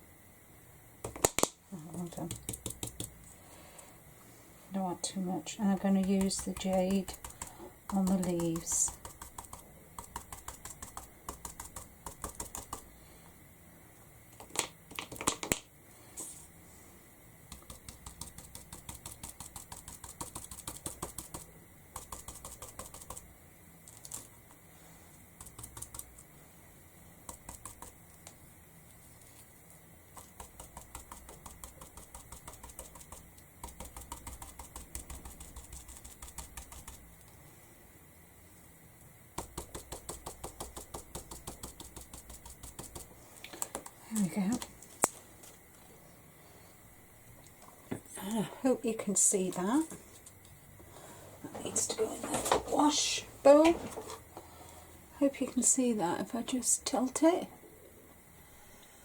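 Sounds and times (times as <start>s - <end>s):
brush tapping on canvas: 5.9s - 12.9s, 17.5s - 23.3s, 27.2s - 28.0s, 30.1s - 37.1s, 39.3s - 43.1s.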